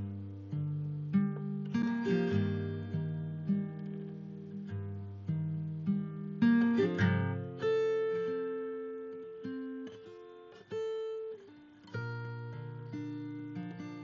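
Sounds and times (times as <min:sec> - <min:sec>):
acoustic guitar plucked notes: 0:00.0 - 0:14.0.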